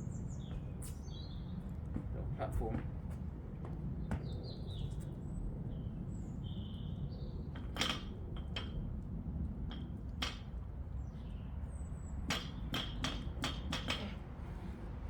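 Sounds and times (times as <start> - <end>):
birds chirping: 0.0 - 2.2.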